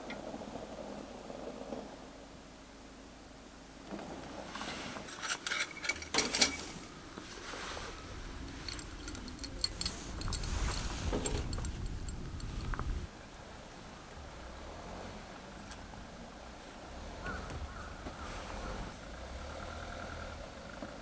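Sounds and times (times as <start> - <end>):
gear rustling: 4.5 - 13.3
light metallic clinks: 5.2 - 13.4.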